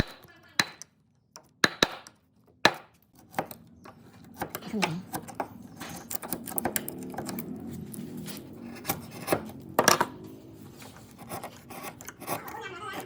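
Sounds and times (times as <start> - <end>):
sharp knocks on wood: 1.6 - 3.5
hand tools scraping wood: 10.7 - 13.0.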